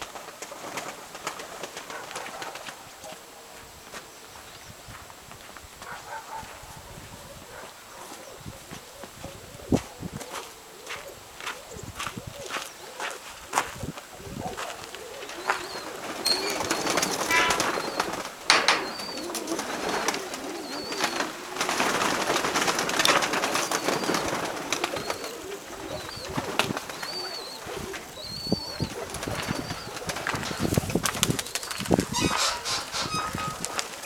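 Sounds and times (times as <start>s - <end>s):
pigeons cooing: 5.9s - 34.0s
rustles and clicks: 14.9s - 25.2s, 29.3s - 34.0s.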